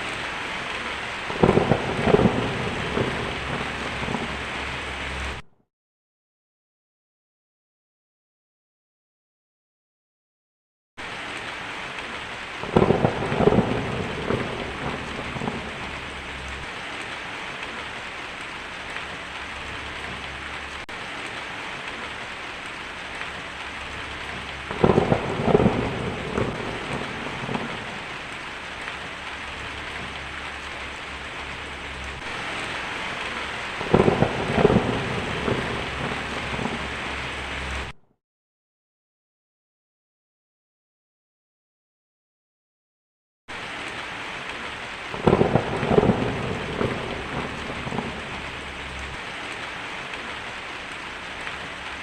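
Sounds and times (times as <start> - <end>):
steady rain: 0.0 - 5.4, 11.0 - 38.0, 43.5 - 52.0
thunder cracking and rumbling: 0.0 - 5.4, 12.2 - 38.0, 45.1 - 51.8.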